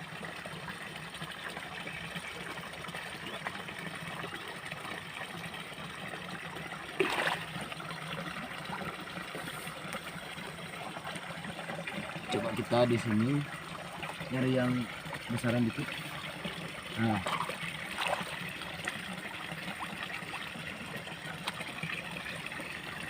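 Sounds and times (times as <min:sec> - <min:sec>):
water trickling and gurgling: 0:00.0 - 0:23.0
splash: 0:07.0 - 0:07.6, 0:17.2 - 0:18.4.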